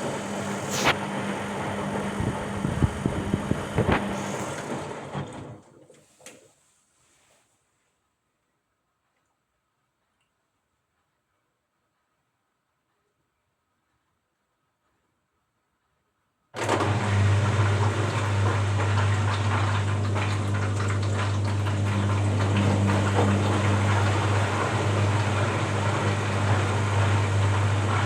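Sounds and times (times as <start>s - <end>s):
washing machine motor hum and rushing: 0.0s - 5.7s, 16.6s - 28.0s.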